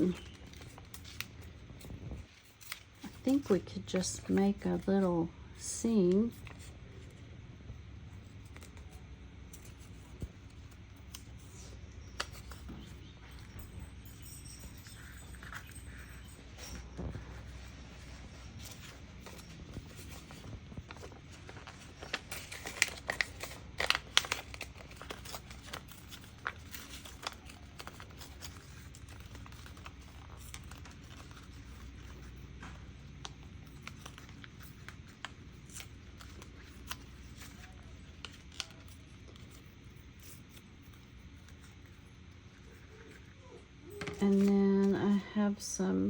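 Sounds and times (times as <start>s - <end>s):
paper rustling and crinkling: 0.0s - 45.2s.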